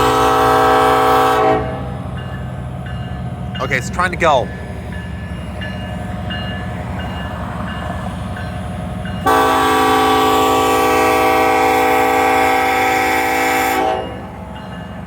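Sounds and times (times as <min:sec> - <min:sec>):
locomotive air horn blast: 0:00.0 - 0:02.0, 0:09.2 - 0:14.4
diesel locomotive engines rumbling: 0:00.0 - 0:15.0
locomotive bell ringing: 0:01.6 - 0:11.2, 0:12.0 - 0:15.0.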